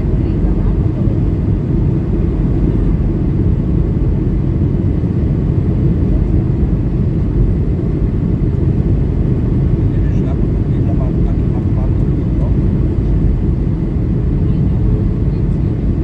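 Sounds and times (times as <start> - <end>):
airplane cabin rumble: 0.0 - 16.0.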